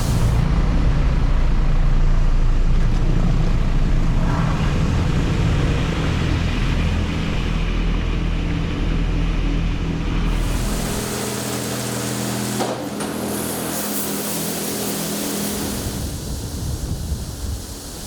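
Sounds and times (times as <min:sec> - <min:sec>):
spray hiss: 0:00.0 - 0:00.4, 0:10.3 - 0:18.0
car wash machinery and spray: 0:00.0 - 0:18.0.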